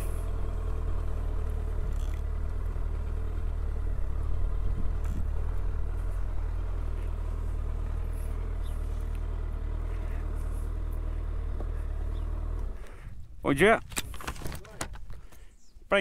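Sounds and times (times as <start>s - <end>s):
motorcycle engine running: 0.0s - 13.1s.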